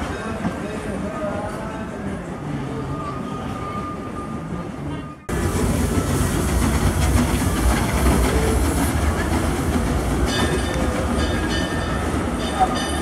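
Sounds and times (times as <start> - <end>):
steam train rumbling on rails: 5.3 - 13.0.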